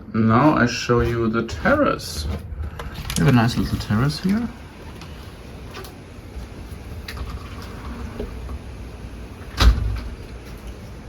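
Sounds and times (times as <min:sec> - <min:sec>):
sliding door rolling: 0:02.1 - 0:11.0
door thudding against stop: 0:09.5 - 0:10.2.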